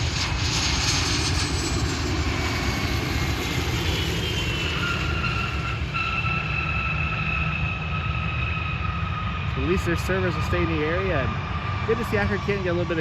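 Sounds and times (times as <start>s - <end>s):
high whining tones: 0.0s - 13.0s
jet engines running: 0.0s - 13.0s.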